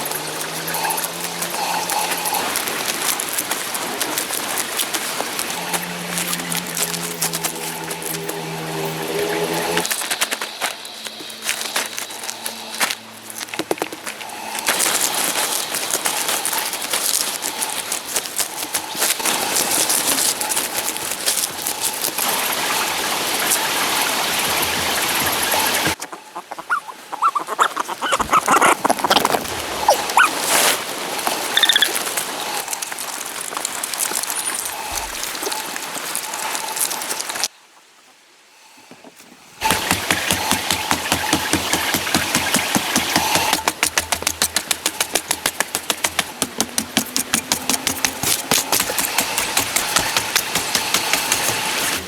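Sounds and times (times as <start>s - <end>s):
engine running: 0.0s - 17.6s, 39.6s - 52.0s
ducks quacking: 18.7s - 30.4s.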